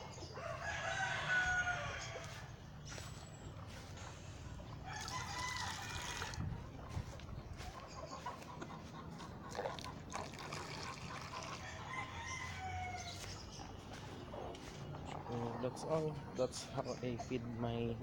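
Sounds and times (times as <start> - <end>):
roosters crowing: 0.0 - 3.1, 4.5 - 7.1, 11.2 - 14.8
chicken calls: 0.0 - 18.0.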